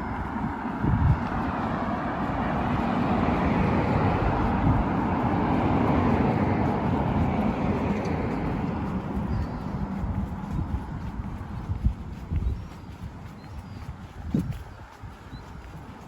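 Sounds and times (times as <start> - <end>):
vehicle passing by: 0.0 - 16.0.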